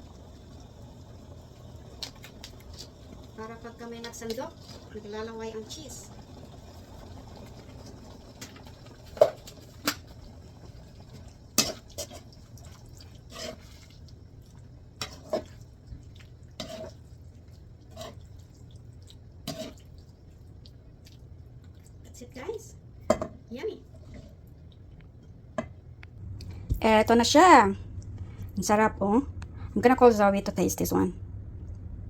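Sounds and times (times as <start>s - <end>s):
pasta sauce bubbling plops: 0.0s - 22.2s
steady low hum: 0.0s - 32.0s.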